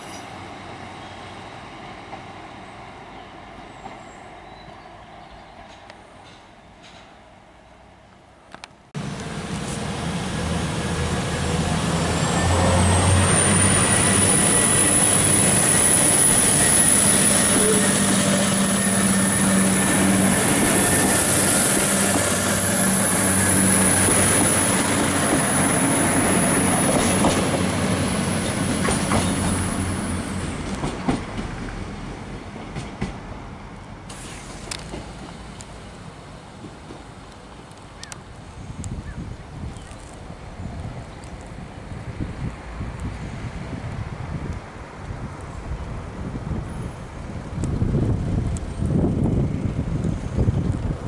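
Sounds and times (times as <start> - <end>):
train wheels on rails: 5.5 - 7.4, 9.0 - 37.9
train engine drone: 9.0 - 39.0.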